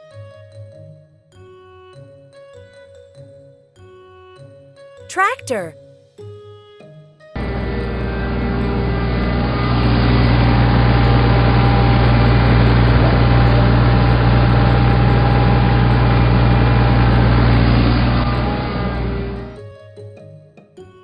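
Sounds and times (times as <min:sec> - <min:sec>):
tractor diesel engine running: 0:07.4 - 0:19.5.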